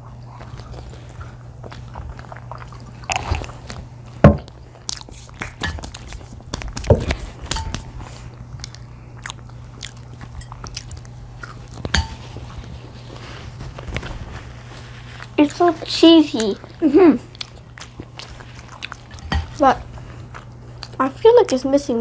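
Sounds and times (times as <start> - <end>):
chewing and crunching pizza: 0.0 - 22.0
steady low hum: 0.0 - 22.0
wet mouth clicks: 3.1 - 3.5, 4.8 - 6.9.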